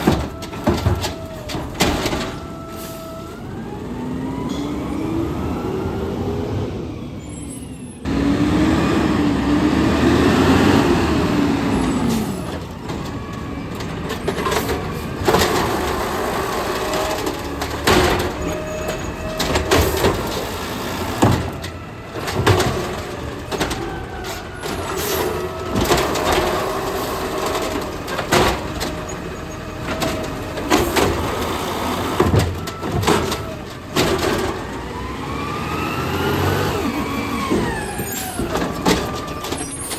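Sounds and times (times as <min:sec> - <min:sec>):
garbage truck engine revving: 0:00.0 - 0:39.9
sharp knocks and clunks: 0:12.1 - 0:34.9.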